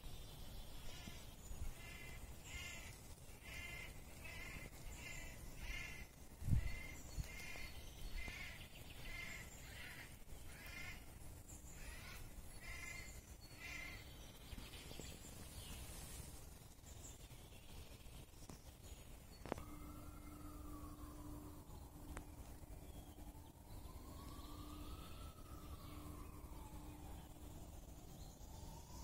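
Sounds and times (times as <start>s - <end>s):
bird calling: 0.8s - 14.2s, 19.4s - 27.5s.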